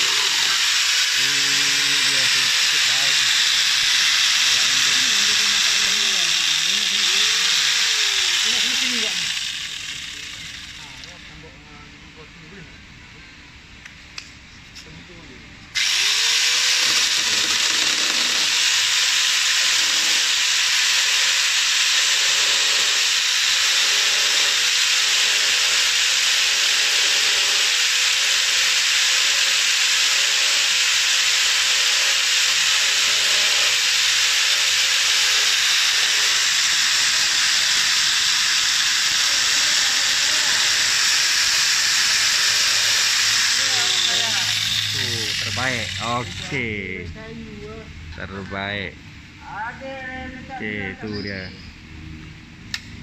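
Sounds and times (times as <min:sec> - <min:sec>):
hissing saw chain: 0:00.0 - 0:11.2, 0:15.8 - 0:46.9
angle grinder motor whine: 0:00.0 - 0:11.5, 0:15.7 - 0:47.0.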